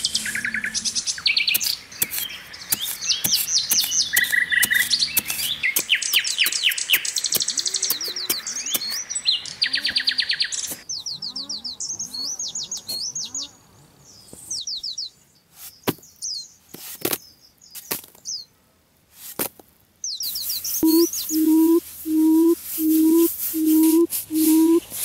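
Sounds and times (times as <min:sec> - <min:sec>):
small birds chirping: 0:00.0 - 0:18.6, 0:20.0 - 0:25.0
music with shaker: 0:20.6 - 0:25.0.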